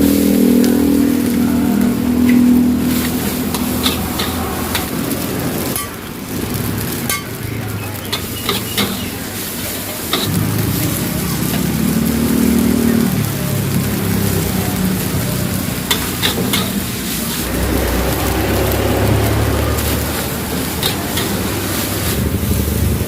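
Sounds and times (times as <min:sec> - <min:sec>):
low droning hum: 0:00.0 - 0:05.4
food sizzling in a wok: 0:00.0 - 0:23.0
metal spatula scraping a pan: 0:02.3 - 0:06.0, 0:08.1 - 0:10.3, 0:15.9 - 0:17.5, 0:19.8 - 0:22.2.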